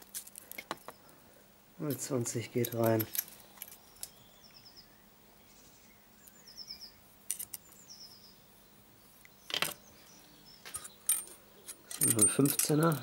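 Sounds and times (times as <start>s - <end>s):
small bird chirping: 2.6s - 13.0s.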